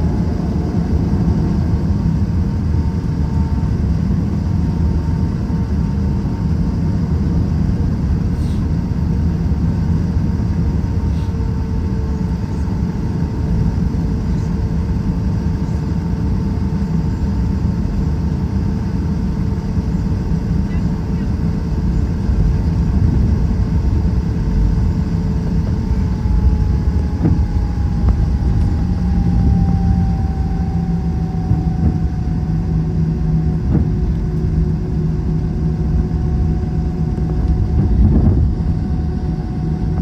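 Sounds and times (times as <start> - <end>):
airplane cabin rumble: 0.0 - 40.0
jet engine whine: 0.0 - 40.0.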